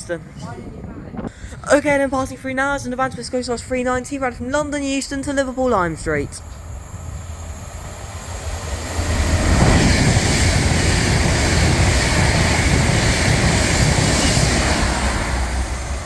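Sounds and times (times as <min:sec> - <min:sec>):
train passing rushing: 0:04.5 - 0:16.0.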